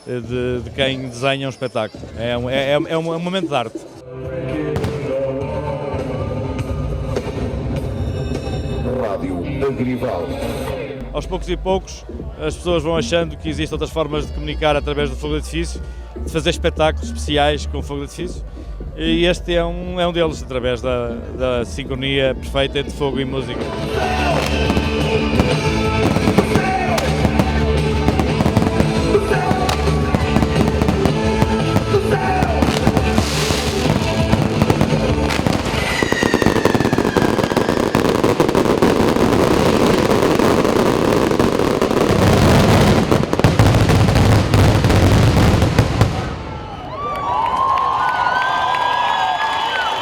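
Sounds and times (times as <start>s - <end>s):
fireworks crackling barrage: 4.8s - 5.3s, 23.6s - 46.9s
rock music: 23.4s - 46.0s
crowd cheering: 23.8s - 50.0s.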